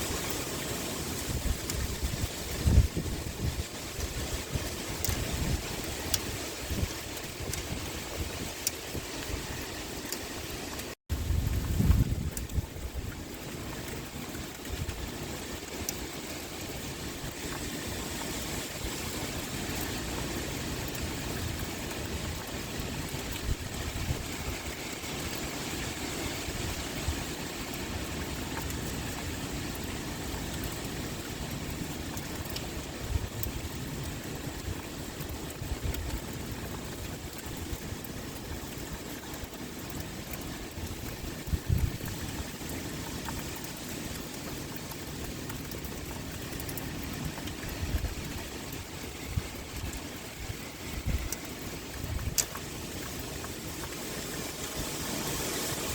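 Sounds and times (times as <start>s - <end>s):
wind blowing: 0.0s - 32.2s, 46.1s - 55.9s
pouring rain: 0.0s - 55.9s.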